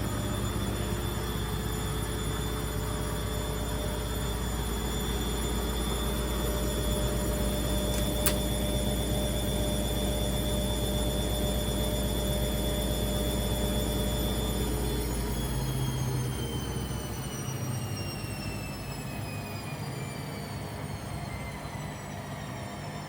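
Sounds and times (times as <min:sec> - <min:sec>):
sharp click: 0:07.9 - 0:08.5.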